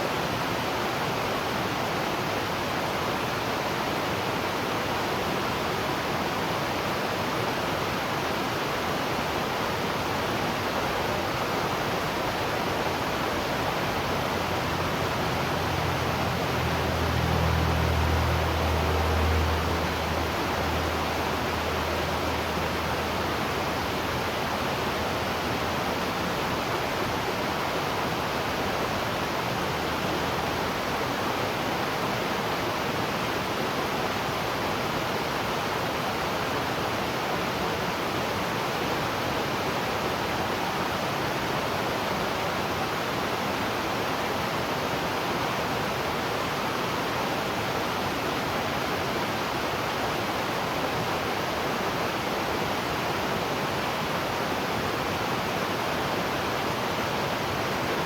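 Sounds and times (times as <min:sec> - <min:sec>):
waterfall rushing: 0:10.2 - 0:32.2
low hum: 0:12.1 - 0:25.5.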